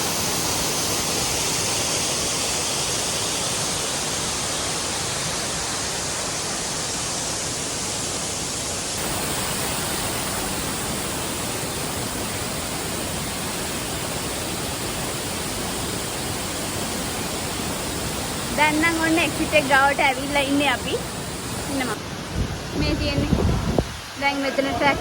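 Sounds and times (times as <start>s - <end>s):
steady rushing noise: 0.0s - 24.8s.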